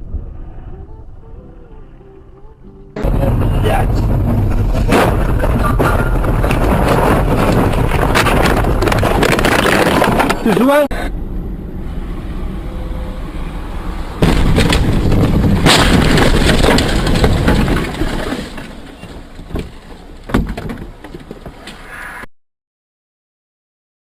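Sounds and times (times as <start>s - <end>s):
car road noise: 0.0s - 22.2s
loud car crash: 3.0s - 10.8s, 14.2s - 20.5s.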